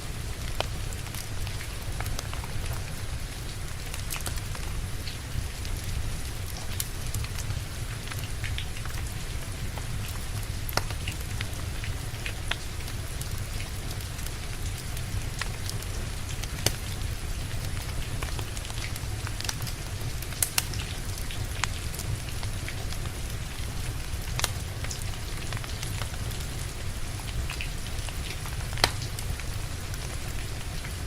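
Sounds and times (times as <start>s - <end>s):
rain falling: 0.0s - 31.0s
wood fire crackling: 0.0s - 31.0s
burning logs popping: 0.3s - 3.0s, 3.8s - 5.3s, 6.4s - 31.0s.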